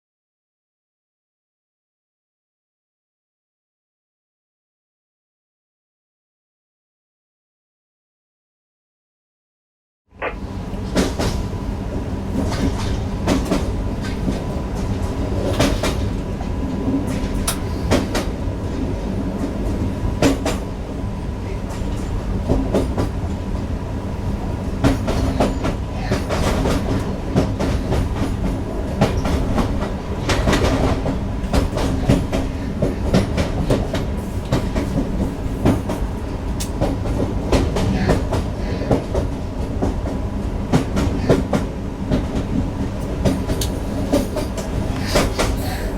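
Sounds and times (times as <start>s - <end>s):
electric train hum: 10.1s - 45.9s.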